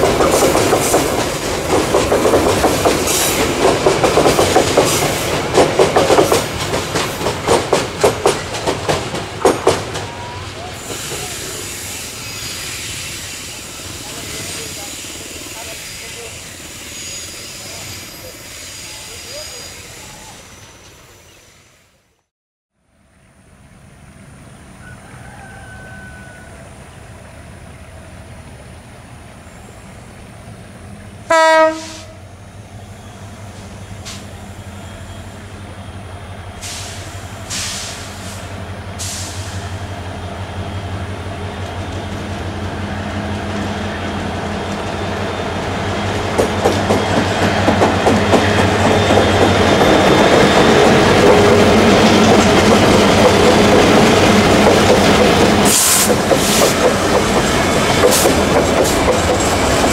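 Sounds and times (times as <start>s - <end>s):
wagons rumbling and clacking: 0.0s - 11.3s, 45.9s - 59.9s
locomotive engines droning: 22.8s - 59.9s
train horn blast: 31.3s - 32.3s.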